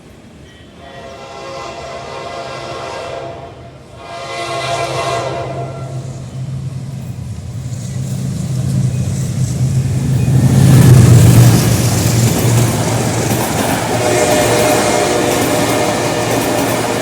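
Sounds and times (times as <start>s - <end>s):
locomotive horn blasts: 0.8s - 6.0s, 13.9s - 17.0s.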